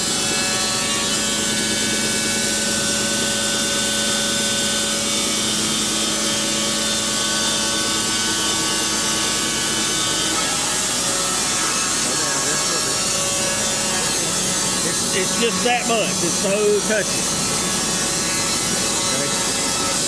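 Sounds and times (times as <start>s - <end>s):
band sawmill cutting log: 0.0s - 20.0s.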